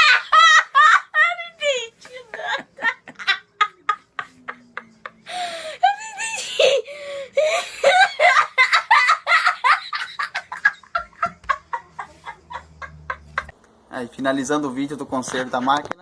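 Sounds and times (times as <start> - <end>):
people laughing: 0.0 - 1.4, 2.0 - 6.8, 7.4 - 13.6.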